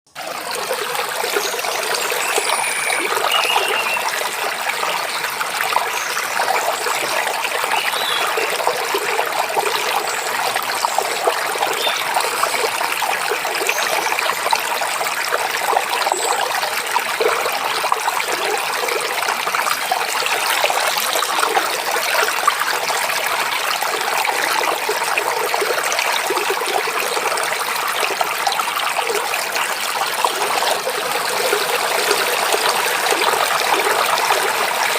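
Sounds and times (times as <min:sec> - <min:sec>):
stream babbling: 0:00.2 - 0:34.9
faint bird chirps: 0:01.5 - 0:04.1.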